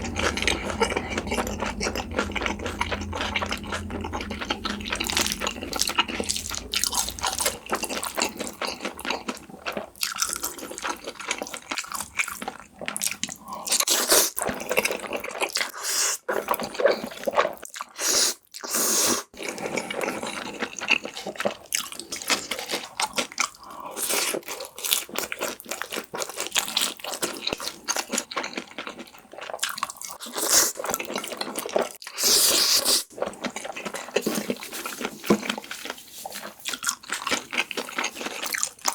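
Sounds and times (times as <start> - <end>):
wet chewing and smacking: 33.1 - 38.9.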